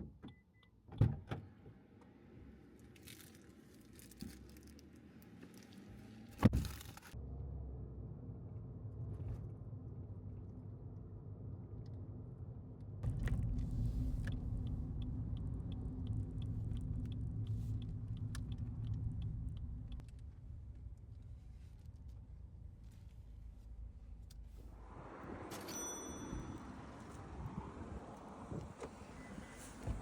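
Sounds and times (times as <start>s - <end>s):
car rumble heard from cabin: 7.2s - 24.9s, 27.4s - 30.0s
light regular ticking: 14.0s - 20.2s.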